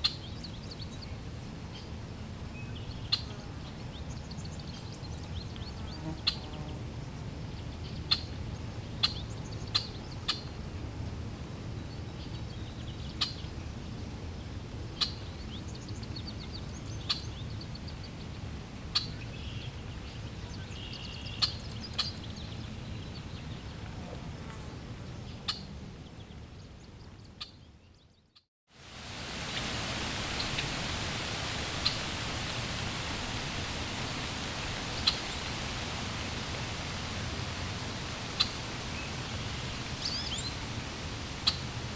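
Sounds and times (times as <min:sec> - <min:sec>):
flowing water rushing: 0:28.7 - 0:41.9
low outdoor rumble: 0:29.2 - 0:41.9.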